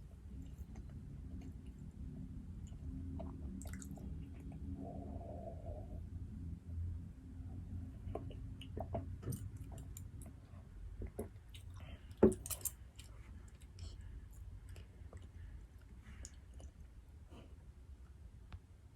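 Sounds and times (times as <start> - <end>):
soft chewing: 0.0 - 6.0, 7.8 - 18.2
small clicks and clinks: 12.2 - 12.8.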